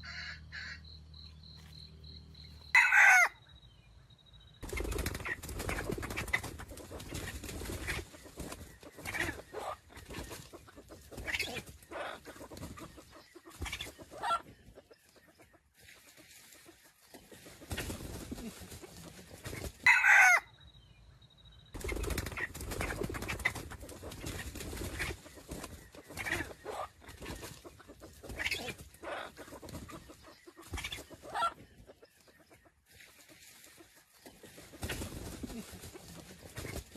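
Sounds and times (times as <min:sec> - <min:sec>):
chicken squawk: 0:00.0 - 0:00.8, 0:02.7 - 0:03.4, 0:14.2 - 0:14.4, 0:19.8 - 0:20.5, 0:30.8 - 0:31.6
chickens clucking: 0:04.6 - 0:20.4, 0:21.8 - 0:36.9.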